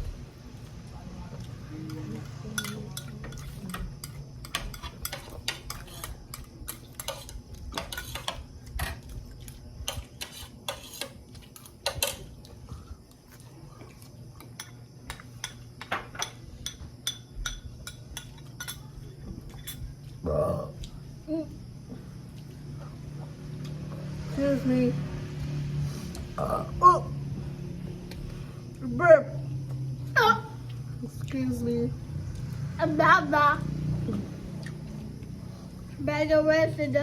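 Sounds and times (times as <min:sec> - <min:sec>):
cutlery clinking on plates: 0:01.9 - 0:09.0, 0:14.4 - 0:19.9.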